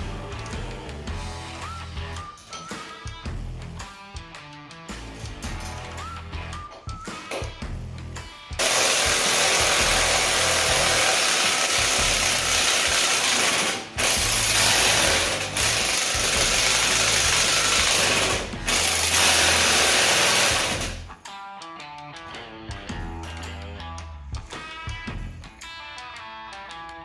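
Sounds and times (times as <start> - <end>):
power tool running: 8.6 - 21.1.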